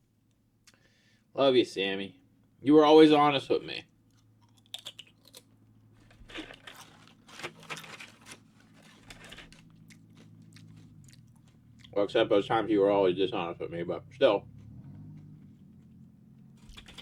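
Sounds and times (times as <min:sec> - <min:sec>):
person chewing food: 0:04.0 - 0:12.0, 0:14.4 - 0:17.0.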